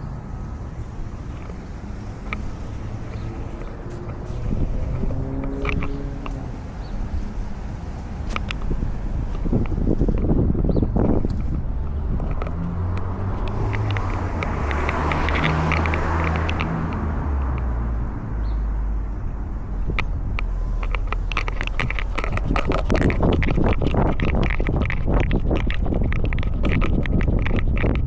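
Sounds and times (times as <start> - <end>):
car passing by: 0.2 - 9.6, 11.0 - 23.0
close rustling and clicking: 0.4 - 17.7, 19.8 - 28.0.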